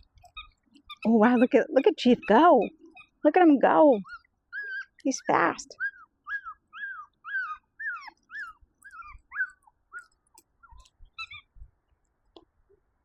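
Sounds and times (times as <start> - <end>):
puppy yelping: 0.2 - 3.2, 4.0 - 5.0, 5.7 - 11.5.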